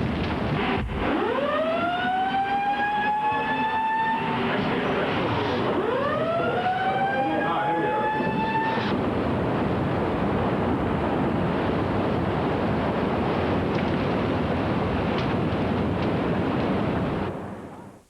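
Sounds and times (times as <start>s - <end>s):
steady rushing noise: 0.0s - 18.0s
siren wailing: 1.0s - 9.0s.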